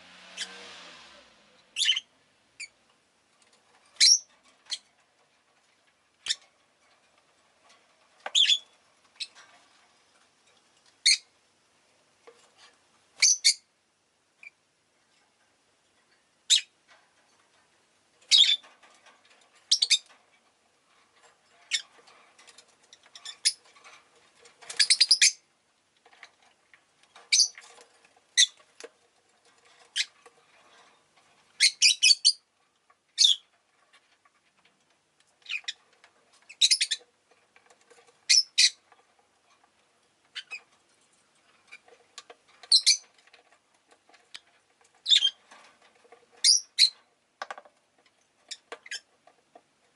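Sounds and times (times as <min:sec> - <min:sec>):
lovebirds chirping: 0:01.6 - 0:02.8, 0:04.0 - 0:04.9, 0:08.3 - 0:09.4, 0:13.2 - 0:13.7, 0:18.3 - 0:18.6, 0:19.7 - 0:20.1, 0:21.6 - 0:21.9, 0:24.7 - 0:25.5, 0:27.3 - 0:27.7, 0:31.6 - 0:32.5, 0:33.1 - 0:33.5, 0:36.5 - 0:37.0, 0:38.2 - 0:38.8, 0:40.3 - 0:40.7, 0:42.6 - 0:43.1, 0:45.0 - 0:45.4, 0:46.4 - 0:47.0.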